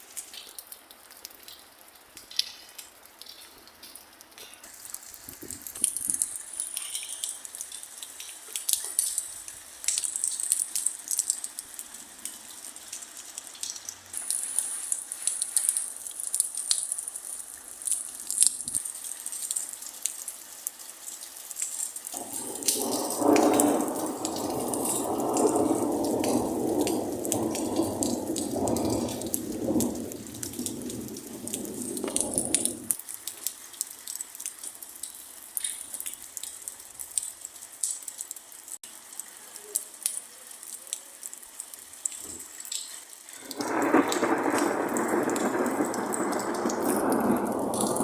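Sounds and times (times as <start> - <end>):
raindrops ticking: 0.0 - 48.0
steady rain: 0.0 - 48.0
thunder rumbling: 22.2 - 33.0, 43.4 - 48.0.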